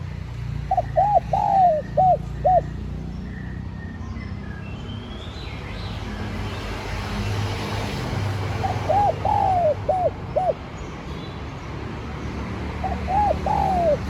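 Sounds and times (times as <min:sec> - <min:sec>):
small birds twittering: 0:00.6 - 0:07.5, 0:08.4 - 0:14.0
dove cooing: 0:00.7 - 0:02.8, 0:08.6 - 0:10.6, 0:12.8 - 0:14.0.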